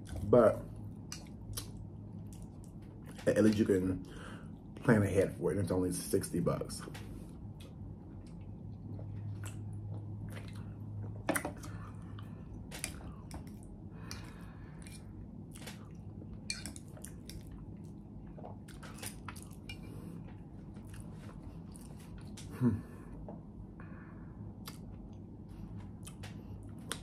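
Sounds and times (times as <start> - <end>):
person chewing: 1.0 - 3.3, 7.6 - 22.7, 24.6 - 27.0.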